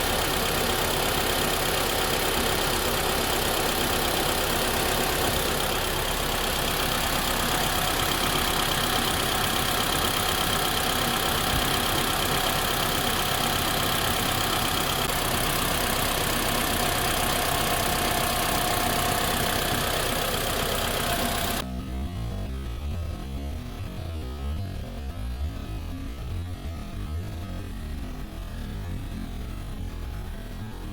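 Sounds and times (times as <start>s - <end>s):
car engine idling: 0.0s - 21.7s.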